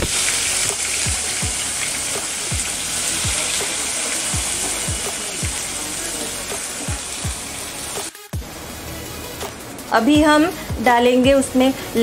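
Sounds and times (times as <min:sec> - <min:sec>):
paste sizzling in hot oil: 0:00.0 - 0:08.1.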